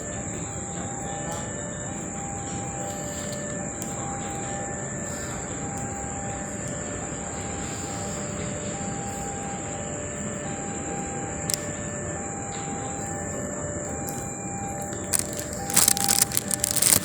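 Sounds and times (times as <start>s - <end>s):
thin tones: 15.0s - 17.0s.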